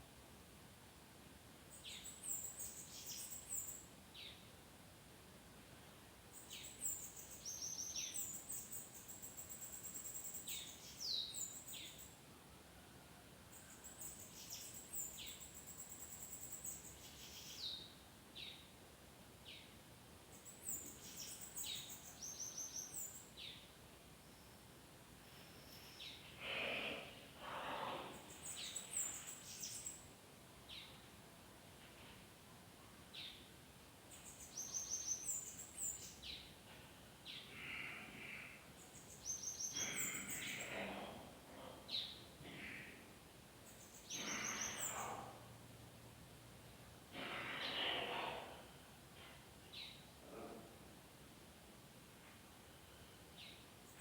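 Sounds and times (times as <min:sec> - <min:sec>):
bird singing buzzy trills: 0:38.8 - 0:40.8.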